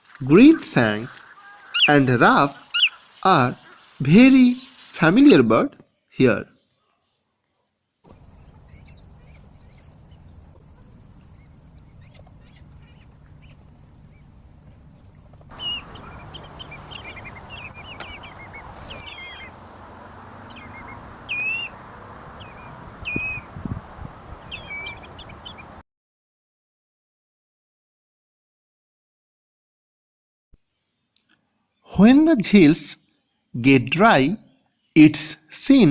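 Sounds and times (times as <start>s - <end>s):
wading birds calling: 0.0s - 5.4s, 8.1s - 25.8s
low background rumble: 8.1s - 25.7s.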